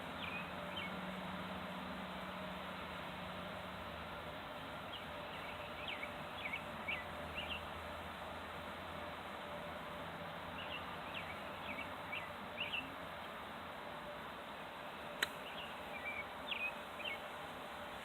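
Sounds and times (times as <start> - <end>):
small birds chirping: 0.0 - 1.1, 4.8 - 7.7, 10.5 - 13.5, 14.8 - 18.0
steady background hiss: 0.0 - 18.0.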